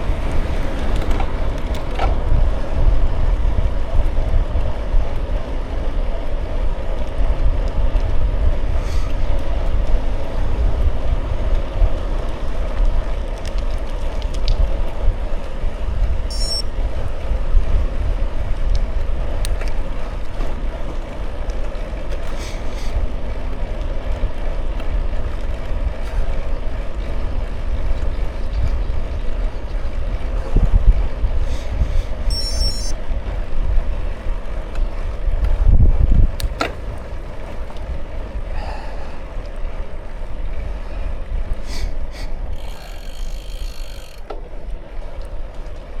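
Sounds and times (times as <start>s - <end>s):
wind buffeting microphone: 0.0s - 46.0s
faint clicks: 41.7s - 44.5s.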